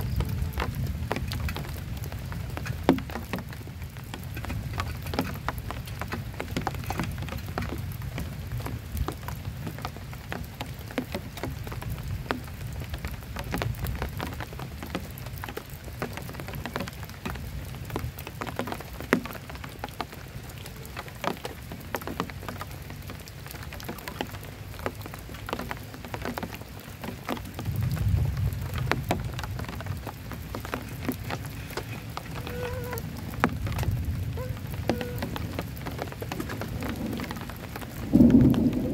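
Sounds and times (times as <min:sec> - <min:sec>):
thunder rumble: 0:00.0 - 0:05.8, 0:27.6 - 0:30.8, 0:32.3 - 0:38.9
heavy rain: 0:00.0 - 0:38.9
raindrops tapping on surface: 0:00.0 - 0:38.9.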